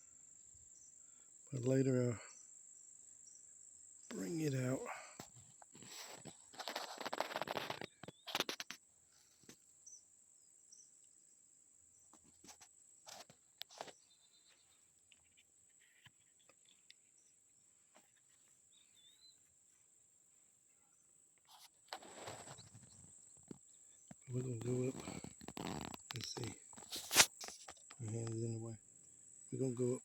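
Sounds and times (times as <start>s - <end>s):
faint bird chirps: 0.0s - 5.0s, 13.7s - 21.7s
rustle: 0.0s - 30.0s.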